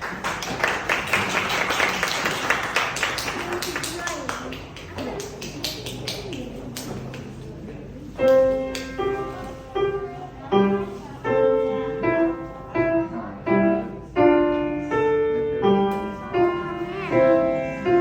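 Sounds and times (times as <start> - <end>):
piano melody: 8.2 - 18.0.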